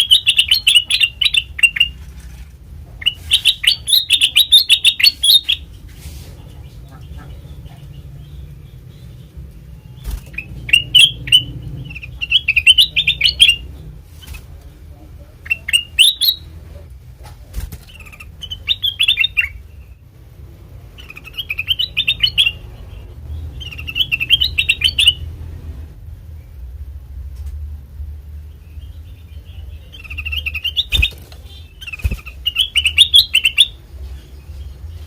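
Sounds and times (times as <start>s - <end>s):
bird singing chirpy phrases: 0.0s - 2.0s, 3.0s - 5.8s, 6.9s - 13.7s, 15.3s - 16.5s, 17.9s - 20.1s, 20.8s - 25.4s, 28.4s - 35.0s
steady low hum: 0.0s - 35.0s.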